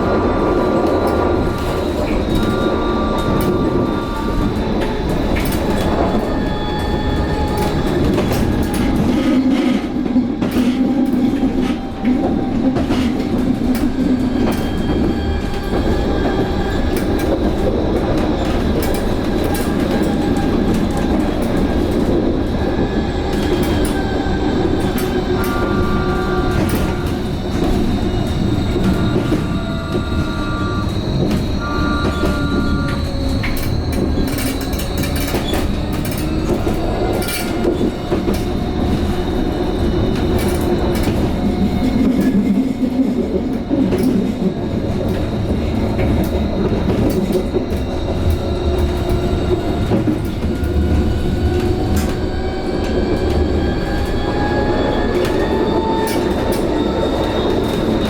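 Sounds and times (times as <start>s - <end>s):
tram wheels rumbling on rail: 0.0s - 58.0s.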